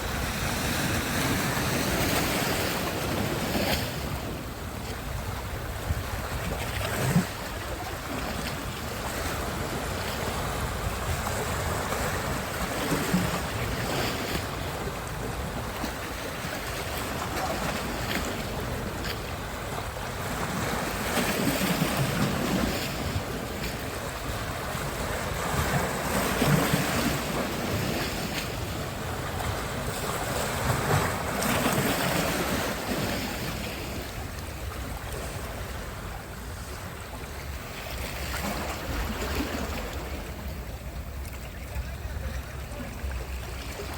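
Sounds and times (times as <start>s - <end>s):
sea waves washing onto shore: 0.0s - 43.9s
wind rumbling on microphone: 0.0s - 43.9s.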